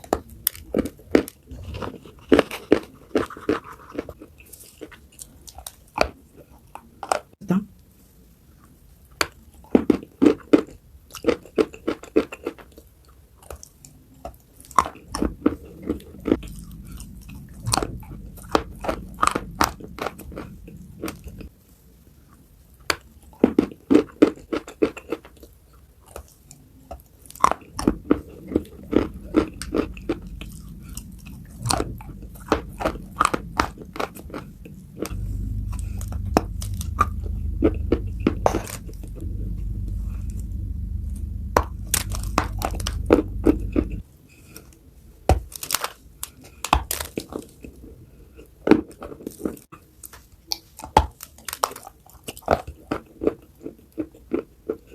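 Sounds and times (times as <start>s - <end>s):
crunchy food chewing: 27.0s - 44.0s.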